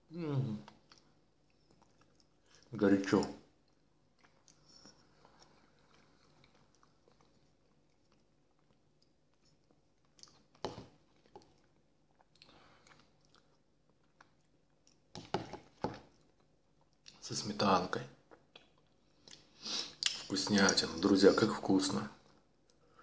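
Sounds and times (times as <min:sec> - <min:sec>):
chewing and mouth smacks: 0:00.7 - 0:02.7, 0:03.6 - 0:17.2, 0:18.2 - 0:20.3.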